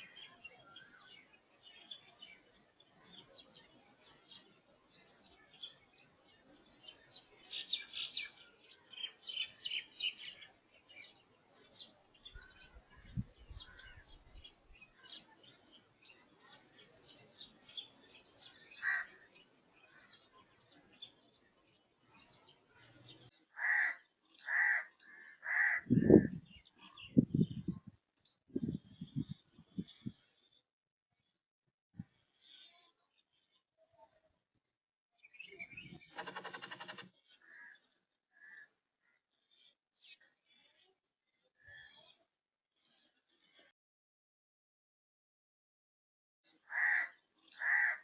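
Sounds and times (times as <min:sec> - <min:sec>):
birds chirping and trilling: 0:00.0 - 0:30.6, 0:32.0 - 0:34.2, 0:35.2 - 0:43.7, 0:46.5 - 0:48.0
loud harsh bird calls: 0:18.7 - 0:19.2, 0:23.5 - 0:26.3, 0:35.9 - 0:37.8, 0:46.6 - 0:48.0.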